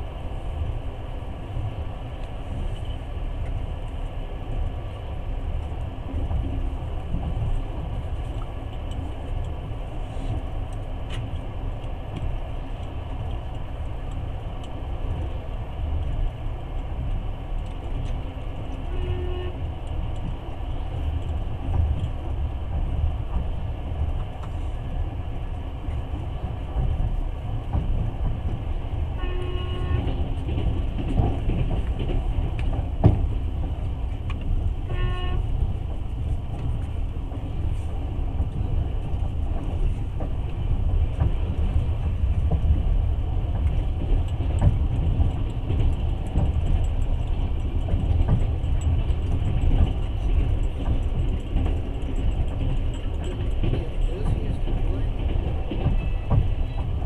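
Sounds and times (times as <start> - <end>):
train rumbling on rails: 0.0 - 57.0
short train horn toots: 18.8 - 19.6, 29.2 - 30.2, 34.8 - 35.6, 55.9 - 56.5.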